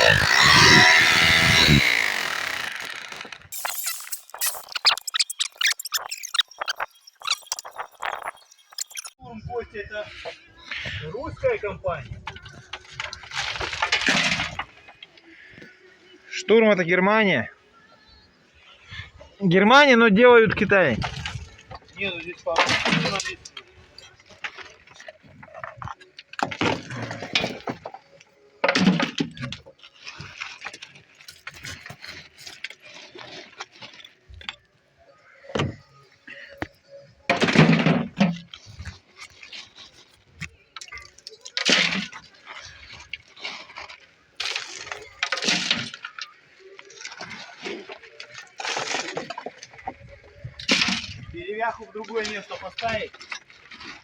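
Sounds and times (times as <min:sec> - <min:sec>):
brick crumbling and cracking: 0:00.0 - 0:09.1.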